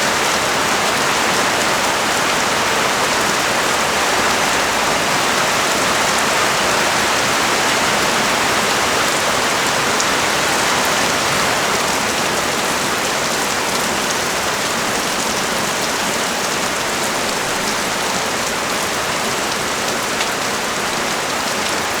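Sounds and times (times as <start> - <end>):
heavy rain pouring on street: 0.0 - 22.0.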